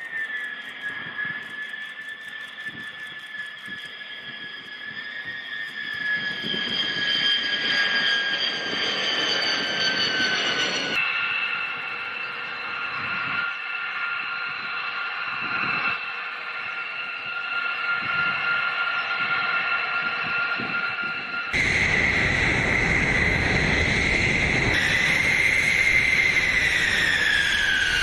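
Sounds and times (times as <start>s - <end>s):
jet engine whine: 0.0s - 28.0s.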